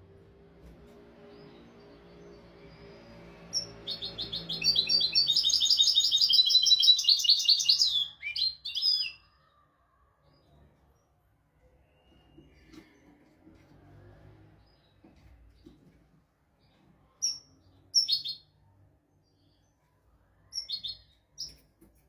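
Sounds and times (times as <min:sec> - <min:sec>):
goldfinch twittering song: 0:01.3 - 0:09.2.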